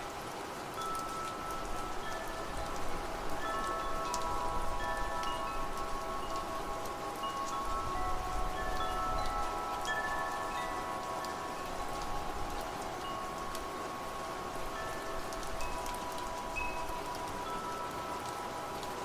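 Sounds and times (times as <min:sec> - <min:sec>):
steady rainfall: 0:00.0 - 0:19.0
wind chimes ringing: 0:00.7 - 0:19.0.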